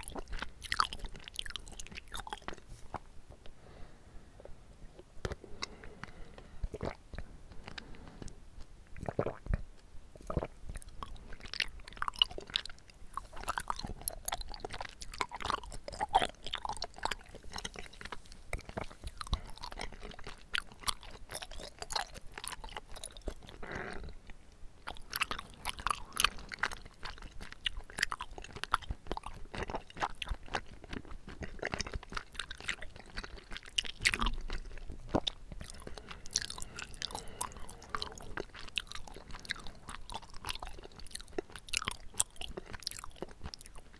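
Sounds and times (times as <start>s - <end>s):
wet chewing mouth sounds: 0.0s - 3.1s, 4.8s - 43.9s.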